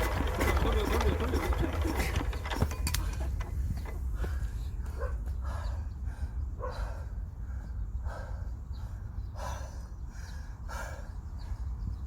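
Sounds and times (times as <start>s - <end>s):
person breathing hard: 4.1s - 11.8s.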